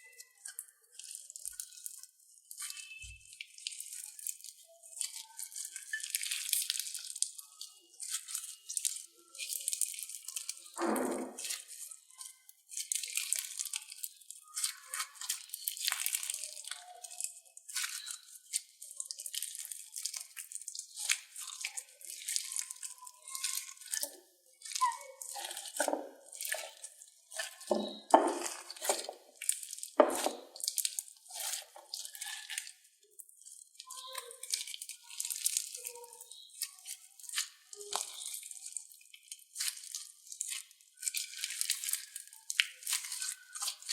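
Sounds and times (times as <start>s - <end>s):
slime squishing: 0.0s - 43.9s
slime crackling and clicking: 11.4s - 32.8s, 33.4s - 43.9s.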